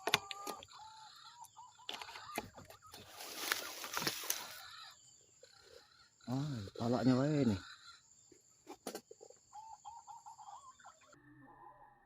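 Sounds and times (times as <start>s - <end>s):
rustling: 3.0s - 4.5s.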